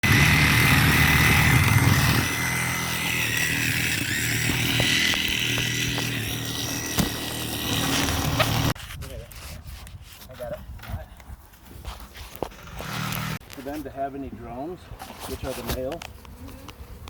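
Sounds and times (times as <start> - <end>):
power tool motor whining: 0.0 - 8.8, 12.5 - 13.4.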